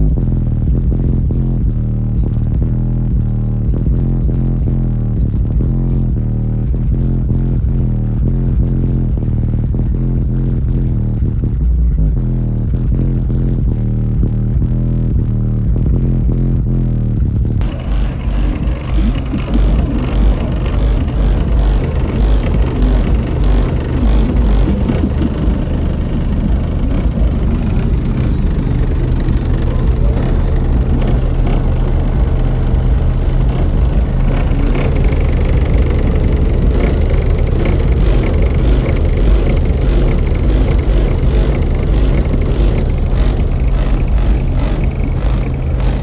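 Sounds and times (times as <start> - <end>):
bass-heavy rap music: 0.0 - 46.0.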